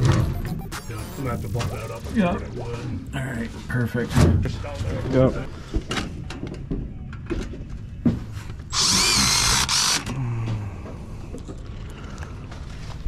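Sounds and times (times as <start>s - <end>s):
power driver whining: 8.7s - 10.1s.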